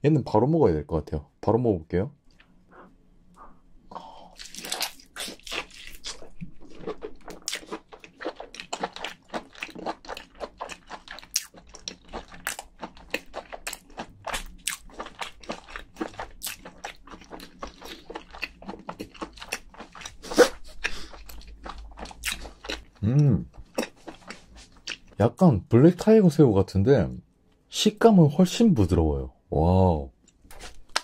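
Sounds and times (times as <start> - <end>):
person chewing wet food: 2.3 - 25.2, 30.3 - 31.0.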